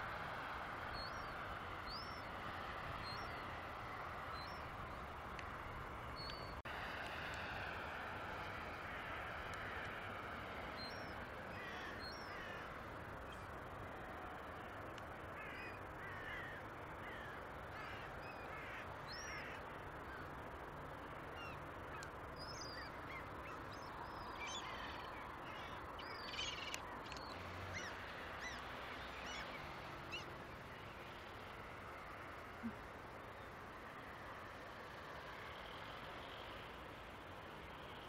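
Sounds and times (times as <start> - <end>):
steady background hiss: 0.0 - 38.0
birds chirping: 4.2 - 6.6, 10.6 - 14.0, 14.8 - 31.6.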